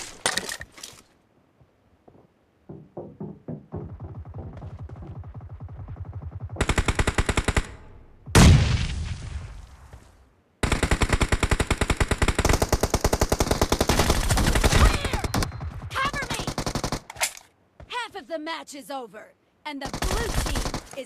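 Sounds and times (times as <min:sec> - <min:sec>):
video game automatic gunfire: 0:04.2 - 0:07.8, 0:19.8 - 0:21.0.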